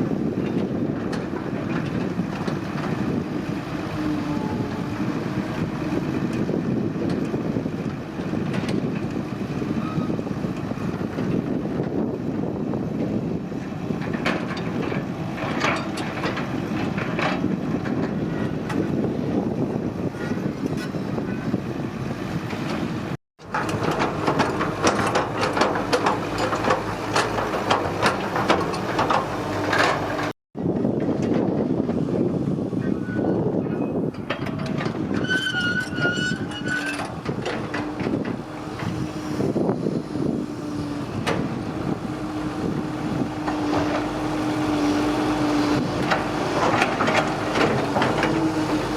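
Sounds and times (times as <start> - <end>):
excavator diesel engine running: 0.0 - 48.9
rapid metallic clanks and knocks: 23.4 - 30.3.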